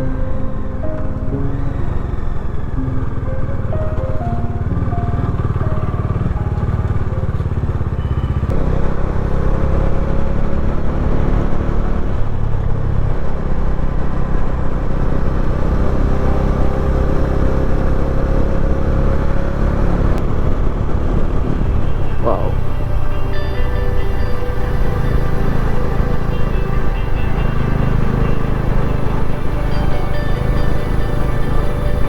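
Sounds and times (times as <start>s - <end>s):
motorcycle engine running: 2.0s - 32.0s
wind rumble on microphone: 8.4s - 32.0s.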